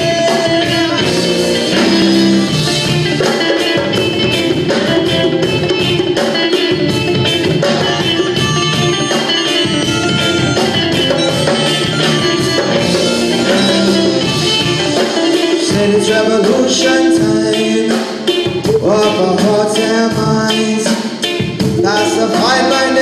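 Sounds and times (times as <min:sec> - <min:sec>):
person singing: 0:00.0 - 0:03.4, 0:12.0 - 0:23.0
drums playing: 0:00.0 - 0:23.0
electric guitar: 0:00.0 - 0:23.0.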